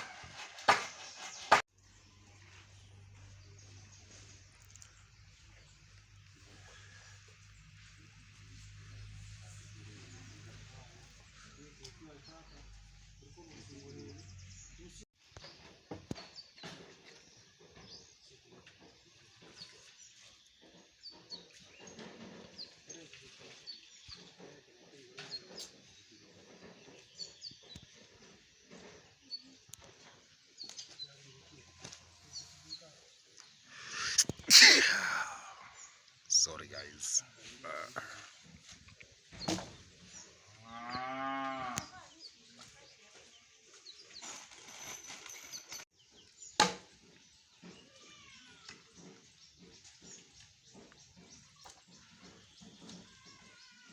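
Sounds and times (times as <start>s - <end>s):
faint low animal noises: 1.9s - 15.0s, 16.8s - 43.3s, 47.2s - 53.9s
cow mooing: 40.6s - 42.0s.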